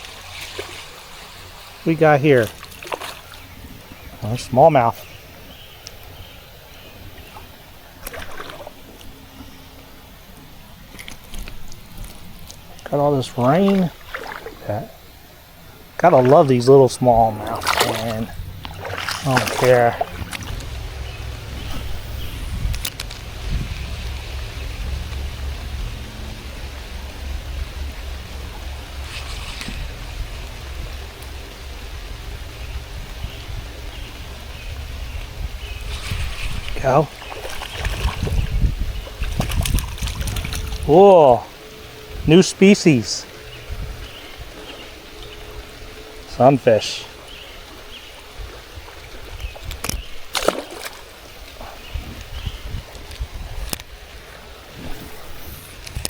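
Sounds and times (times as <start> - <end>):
water splashing: 0.0 - 56.0
low rumble: 17.2 - 40.9.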